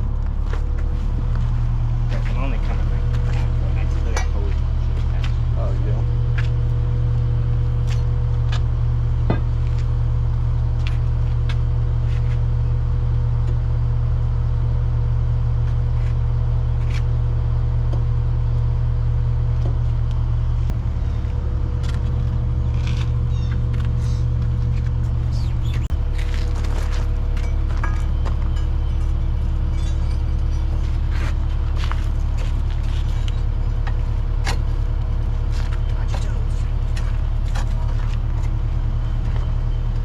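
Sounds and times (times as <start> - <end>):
machine engine humming: 0.0 - 40.0
metal clinks and knocks: 26.1 - 29.7.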